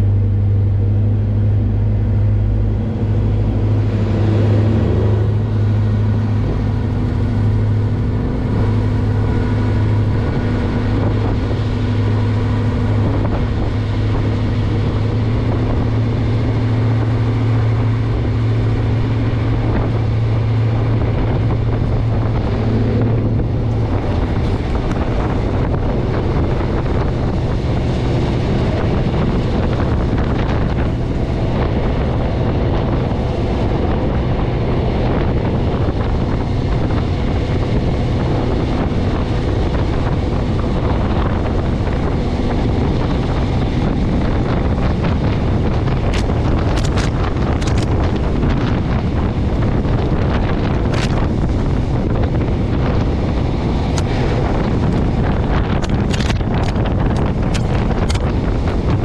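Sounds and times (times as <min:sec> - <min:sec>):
train running rumble: 0:00.0 - 0:59.0
wind on microphone: 0:00.0 - 0:59.0
sharp clicks: 0:57.4 - 0:58.3.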